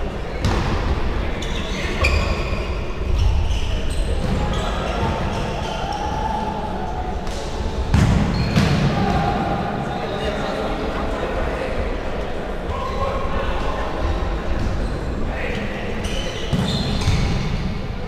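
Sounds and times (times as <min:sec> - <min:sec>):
players shouting: 0:08.4 - 0:10.0.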